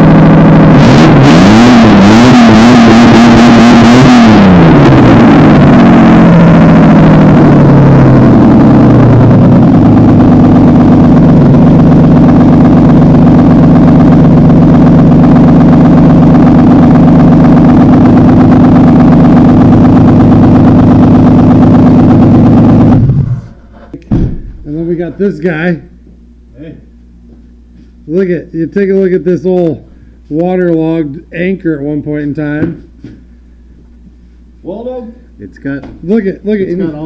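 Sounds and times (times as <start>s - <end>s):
car engine idling without exhaust: 4.4s - 25.1s.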